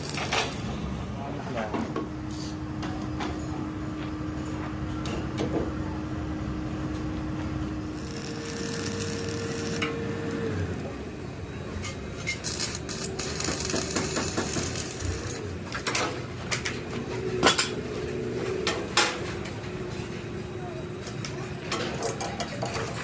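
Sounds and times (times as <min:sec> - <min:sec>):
machine hum: 0:05.8 - 0:21.8
metal tools clanking and scraping: 0:11.8 - 0:19.6.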